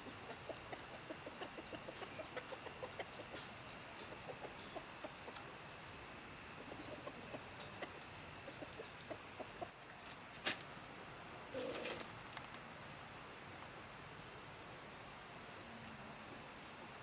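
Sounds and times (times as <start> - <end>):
chickens clucking: 0.0 - 10.2
insect hum: 0.0 - 17.0.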